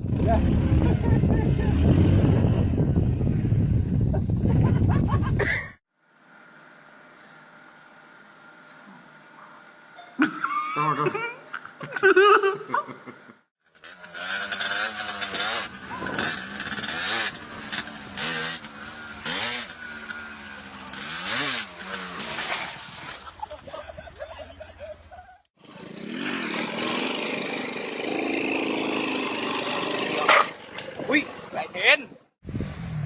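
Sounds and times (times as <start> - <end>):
motorcycle engine revving: 0.0 - 3.9, 13.6 - 22.9, 25.6 - 31.8.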